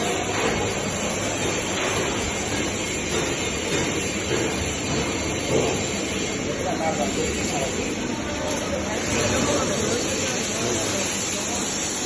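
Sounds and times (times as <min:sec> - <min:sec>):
workshop rumbling hiss: 0:00.0 - 0:12.0.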